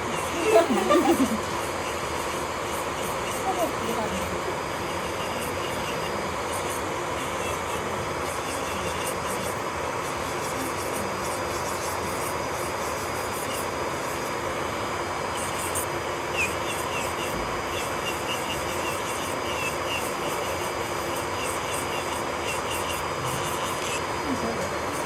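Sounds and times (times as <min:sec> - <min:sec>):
electric nail drill grinding: 0:00.0 - 0:25.0.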